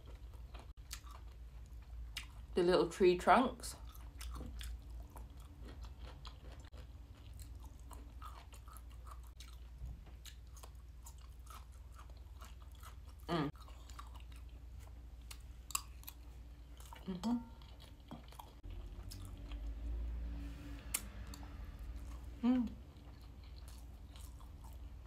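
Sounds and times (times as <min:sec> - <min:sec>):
chewing food: 0:00.0 - 0:02.6, 0:03.6 - 0:20.0, 0:20.8 - 0:25.0.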